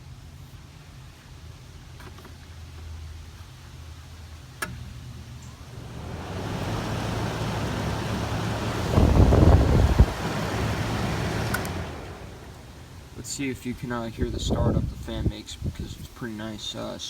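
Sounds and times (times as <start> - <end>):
air conditioner fan running: 0.0 - 17.0
low rumble buffeting microphone: 5.1 - 17.0.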